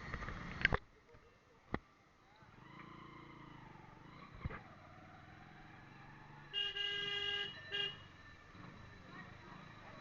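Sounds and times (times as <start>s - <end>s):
faint vehicle engine running: 0.0s - 10.0s
loud vehicle horn: 6.5s - 8.1s.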